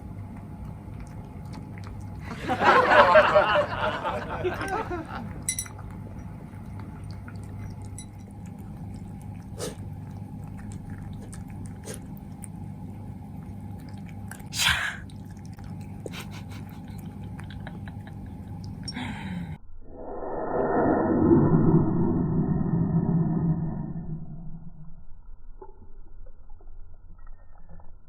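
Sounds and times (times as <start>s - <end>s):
cats chewing food: 0.0s - 18.9s
low steady hum: 0.0s - 28.0s.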